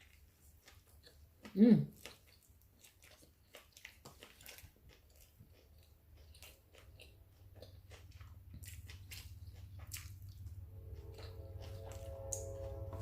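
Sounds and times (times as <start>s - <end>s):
person chewing: 0.0s - 12.9s
low hum: 7.7s - 13.0s.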